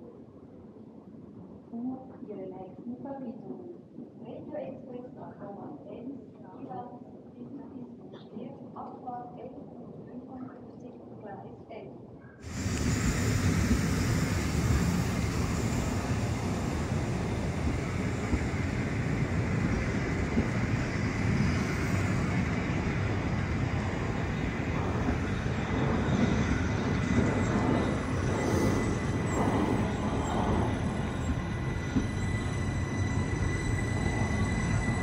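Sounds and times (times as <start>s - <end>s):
train wheels rumbling on rails: 12.4s - 35.0s.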